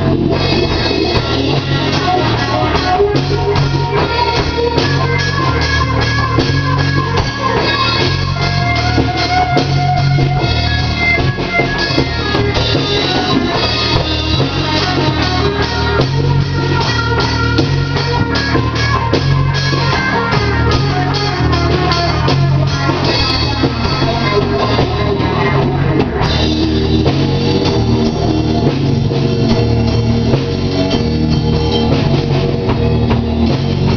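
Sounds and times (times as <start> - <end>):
rock band playing: 0.0 - 33.9.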